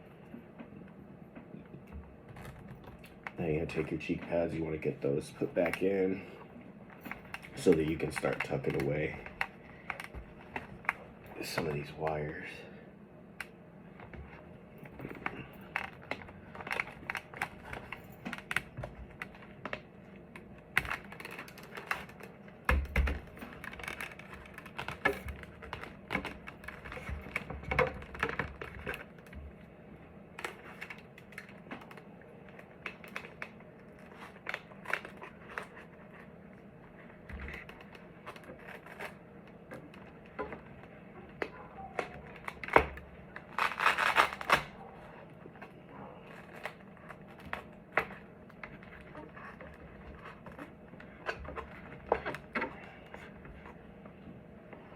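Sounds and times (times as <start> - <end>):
small clicks taps and rustles: 6.9 - 12.2, 13.4 - 29.7, 30.3 - 44.6.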